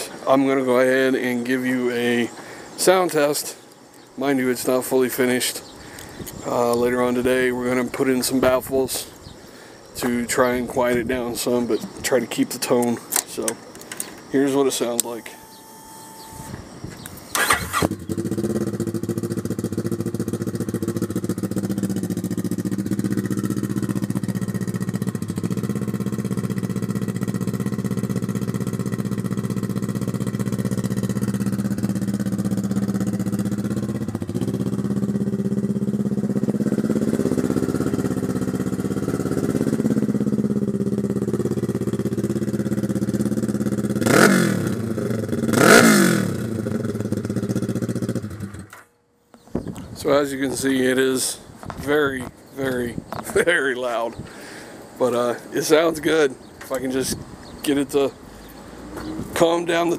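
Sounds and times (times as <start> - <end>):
motorcycle engine idling: 3.7 - 48.9
engine revving: 17.3 - 48.9.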